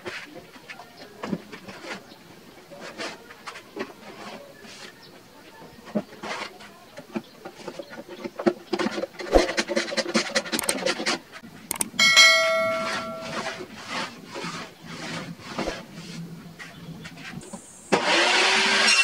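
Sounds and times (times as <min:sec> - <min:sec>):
tools clicking and rattling: 0:10.3 - 0:11.0, 0:11.7 - 0:13.5
ringing metallic clang: 0:11.8 - 0:13.6.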